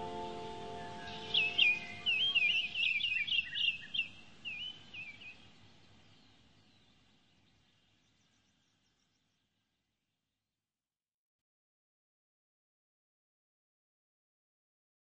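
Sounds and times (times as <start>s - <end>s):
bird chirping: 0.0s - 9.7s.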